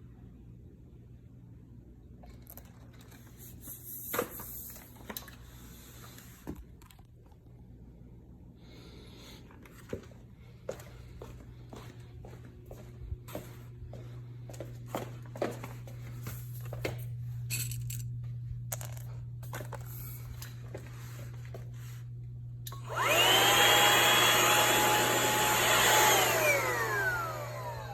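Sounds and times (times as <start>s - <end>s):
vacuum motor whine: 19.4s - 27.9s.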